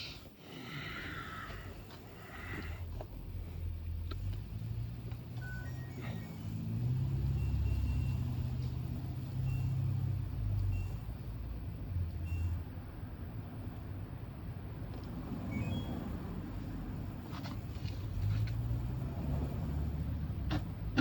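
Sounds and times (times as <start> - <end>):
short high beeps: 5.4 - 6.6, 15.5 - 16.0.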